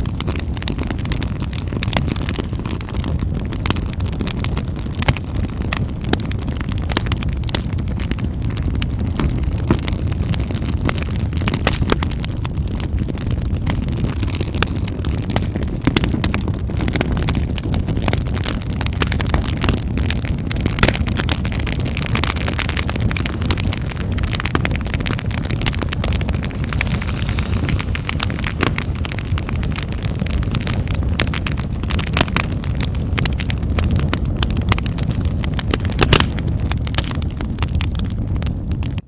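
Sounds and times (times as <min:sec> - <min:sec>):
wood fire crackling and popping: 0:00.0 - 0:39.0.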